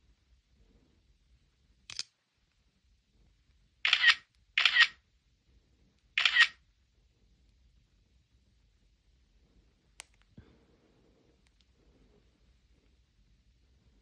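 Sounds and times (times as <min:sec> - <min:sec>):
phone camera shutter sound: 0:03.9 - 0:05.0, 0:06.2 - 0:06.6.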